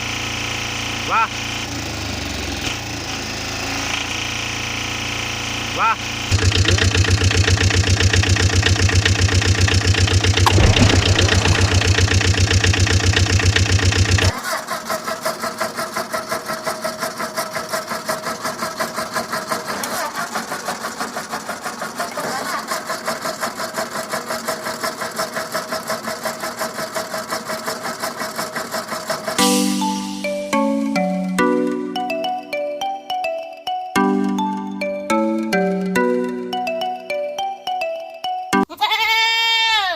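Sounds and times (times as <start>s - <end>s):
quieter pulsing cartoon engine: 0.0s - 14.3s
loud low cartoon engine: 0.0s - 24.9s.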